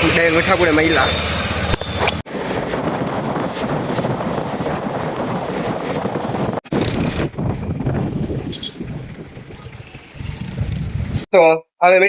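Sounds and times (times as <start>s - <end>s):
auto-rickshaw engine rumbling: 0.0s - 2.8s, 6.1s - 11.3s
wind rushing over microphone: 1.6s - 11.3s.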